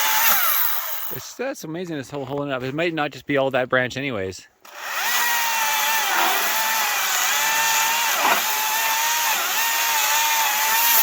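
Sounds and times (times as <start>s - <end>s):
electric chainsaw cutting wood: 0.0s - 1.3s, 4.6s - 11.0s.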